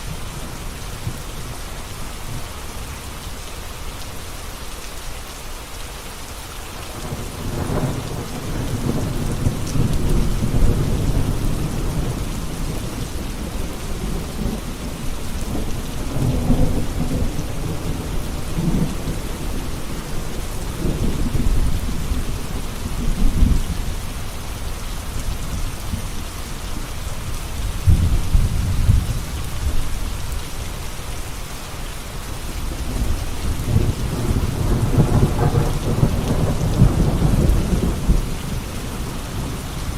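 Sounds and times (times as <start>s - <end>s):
steady rain: 0.0s - 39.9s
thunder rumbling: 7.0s - 24.4s, 27.6s - 30.3s, 32.7s - 39.9s.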